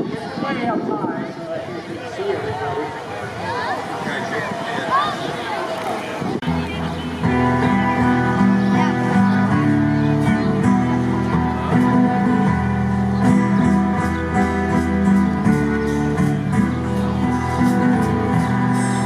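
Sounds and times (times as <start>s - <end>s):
bass line: 6.4s - 19.0s
guitar chords: 6.4s - 19.0s.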